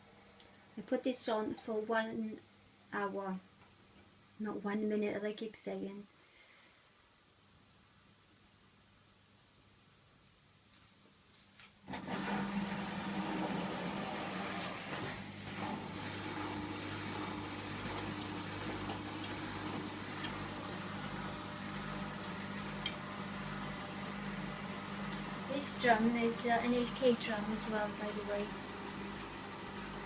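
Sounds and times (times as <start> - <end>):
washing machine humming: 11.8 - 30.0.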